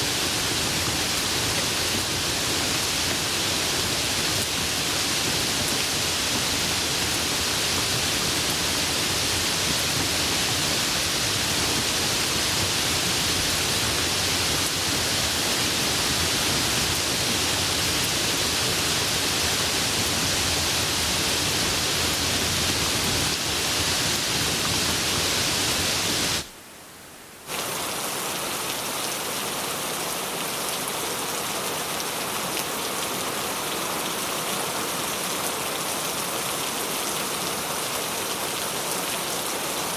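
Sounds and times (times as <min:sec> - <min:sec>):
heavy rain falling: 0:00.0 - 0:26.6, 0:27.4 - 0:39.9.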